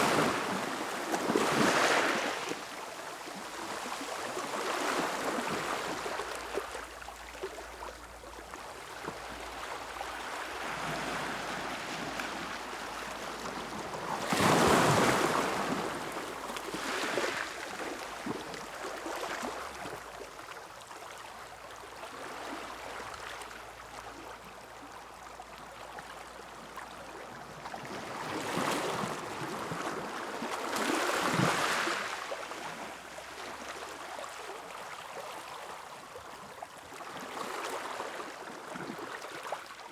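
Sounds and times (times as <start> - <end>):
ocean surf breaking on beach: 0.0 - 2.7.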